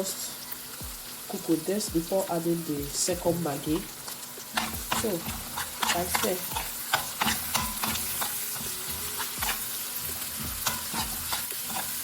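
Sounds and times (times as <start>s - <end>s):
sauce sizzling in oil: 0.0s - 12.0s
spoon scraping and knocking pan: 3.2s - 12.0s.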